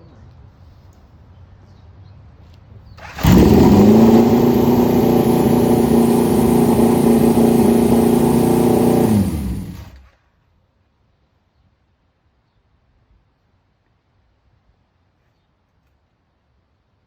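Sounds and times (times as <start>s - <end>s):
motorcycle engine running: 3.0s - 10.1s.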